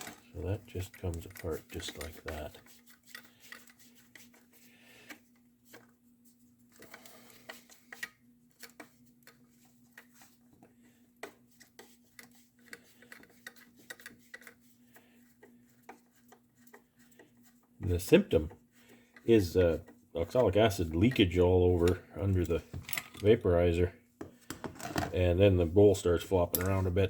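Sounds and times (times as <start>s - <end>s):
metal parts clicking and tapping: 0.0s - 4.5s, 6.7s - 17.3s, 19.2s - 23.3s, 26.4s - 26.9s.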